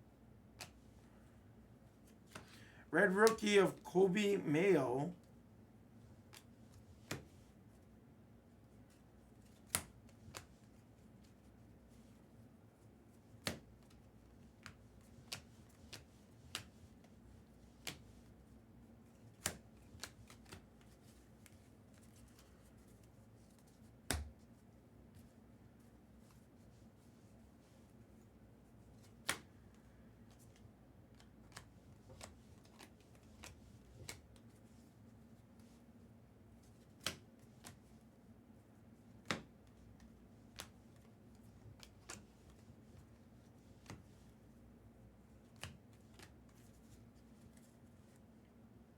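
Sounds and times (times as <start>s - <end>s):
faint steady hum: 0.0s - 6.7s
cards clicking and tapping on table: 30.3s - 34.4s, 39.2s - 40.8s.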